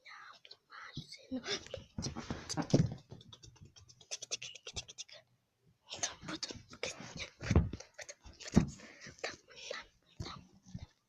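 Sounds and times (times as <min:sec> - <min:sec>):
scratching and rustling: 0:01.5 - 0:05.1.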